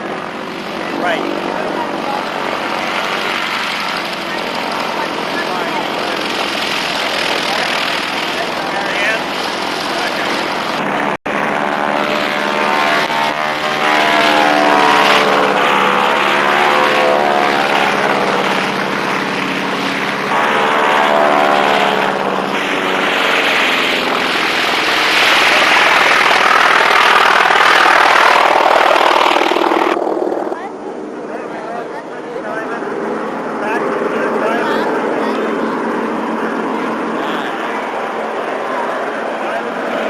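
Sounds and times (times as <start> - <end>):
propeller plane flying past: 0.0 - 40.0.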